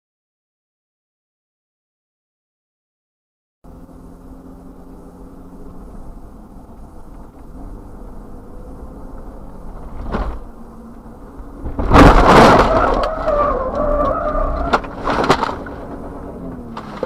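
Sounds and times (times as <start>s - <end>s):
road rumble: 3.6s - 17.0s
loud car crash: 11.6s - 15.7s.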